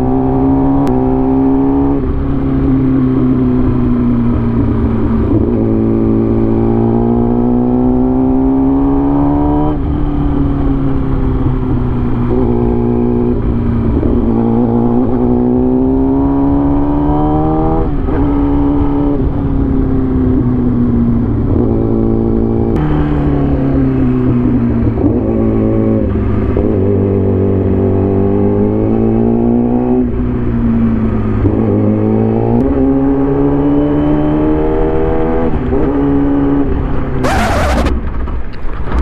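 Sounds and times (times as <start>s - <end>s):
road noise: 0.0s - 28.9s, 34.4s - 39.0s
engine accelerating: 22.6s - 26.2s, 37.2s - 38.2s.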